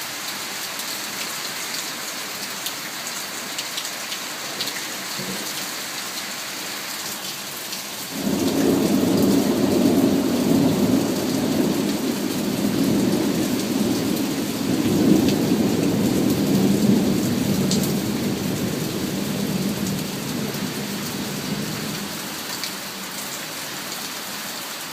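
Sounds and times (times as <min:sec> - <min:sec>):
heavy rain: 0:00.0 - 0:24.9
rolling thunder: 0:08.2 - 0:22.0.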